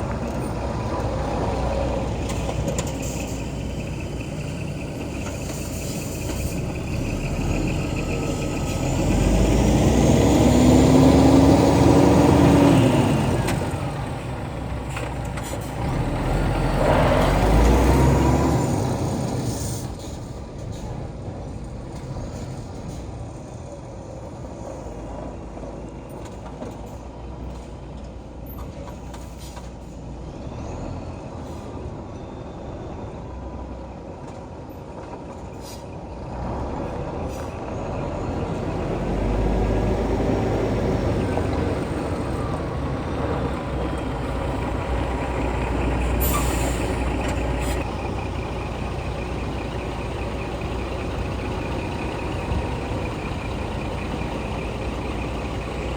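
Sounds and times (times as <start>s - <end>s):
truck diesel engine running: 0.0s - 19.6s, 36.2s - 55.9s
air brake hiss: 46.2s - 47.0s.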